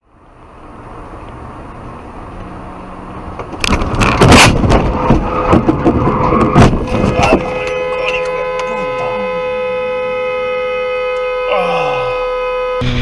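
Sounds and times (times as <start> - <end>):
vehicle and road noise: 0.0 - 13.0
car crash with crunching metal: 3.7 - 7.6.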